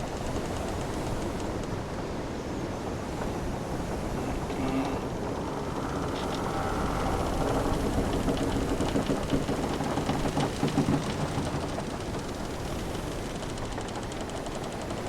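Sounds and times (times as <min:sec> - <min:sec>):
sea waves rumbling: 0:00.0 - 0:15.0
ship timbers creaking: 0:03.1 - 0:14.7
small wooden clicks: 0:04.3 - 0:15.0.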